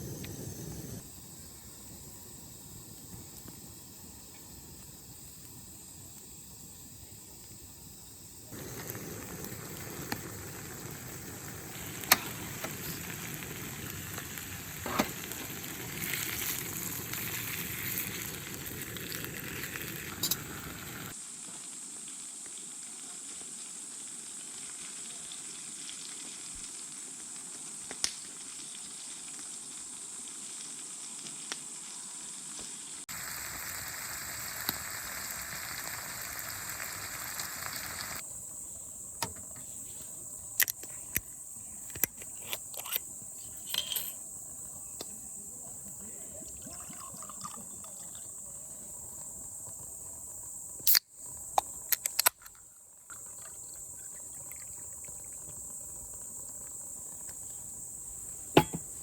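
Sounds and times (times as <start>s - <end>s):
insects chirring: 0.0s - 59.0s
sizzling hiss: 0.0s - 59.0s
sharp clicks and knocks: 58.6s - 59.0s.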